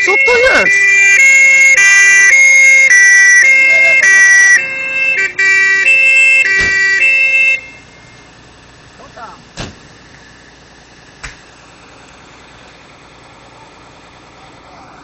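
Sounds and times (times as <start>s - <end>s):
fire engine two-tone siren: 0.0s - 8.3s.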